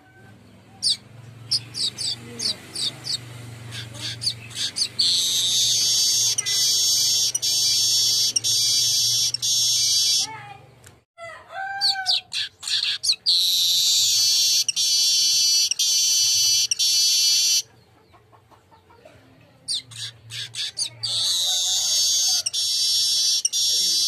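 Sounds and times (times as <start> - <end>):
bird buzzy trill: 0.8 - 10.4, 12.4 - 17.7, 20.0 - 24.0
bird chattering notes: 0.8 - 10.4, 12.1 - 17.8, 19.6 - 24.0.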